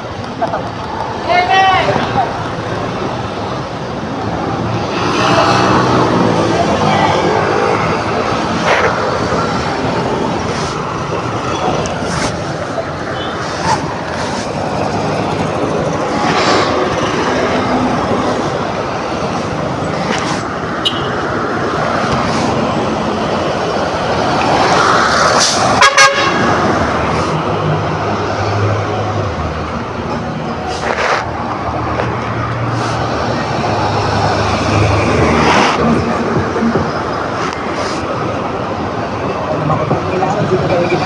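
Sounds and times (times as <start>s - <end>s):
motor scooter road and wind noise: 0.0s - 41.0s
vehicle horn honks: 20.8s - 21.1s, 25.8s - 26.4s.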